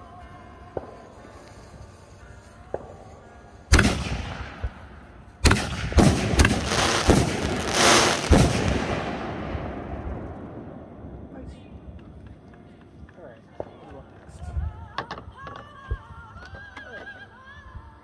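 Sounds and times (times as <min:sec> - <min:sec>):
fireworks hiss: 0:00.8 - 0:09.8
fireworks bangs: 0:03.7 - 0:04.8, 0:05.4 - 0:12.6.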